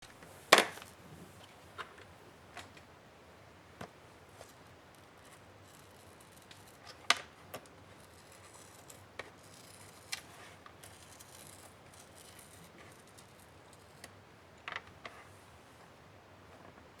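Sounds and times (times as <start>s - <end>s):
plastic laptop case clicks: 0.6s - 0.9s.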